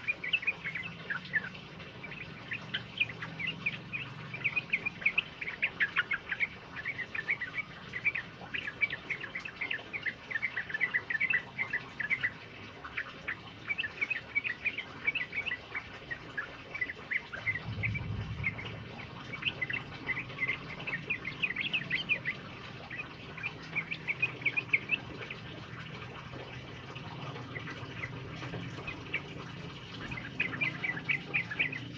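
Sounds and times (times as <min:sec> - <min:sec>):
bird singing bubbling chirps: 0:00.0 - 0:31.9
brief low rumble: 0:17.6 - 0:19.0.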